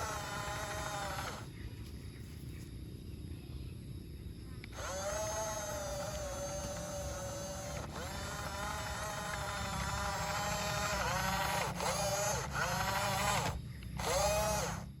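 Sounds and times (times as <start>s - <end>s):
small electric motors whining: 0.0s - 1.6s, 4.6s - 15.0s.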